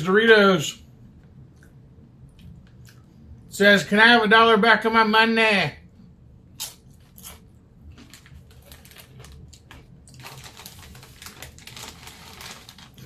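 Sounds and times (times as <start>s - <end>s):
crunchy chips being chewed: 6.6s - 13.0s.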